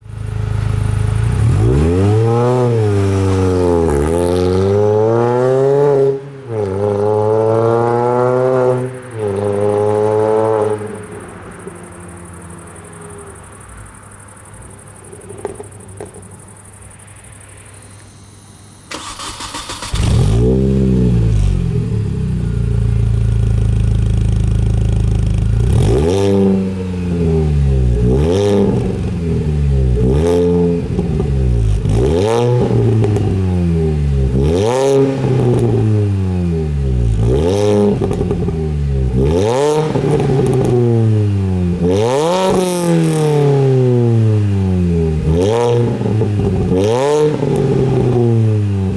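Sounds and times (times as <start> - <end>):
car engine idling and revving: 0.0 - 16.8, 18.9 - 48.9
starter motor whirring: 18.9 - 20.4.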